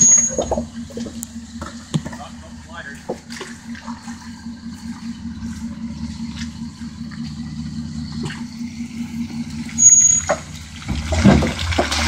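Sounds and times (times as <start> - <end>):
off-road vehicle engine running: 0.0 - 12.0.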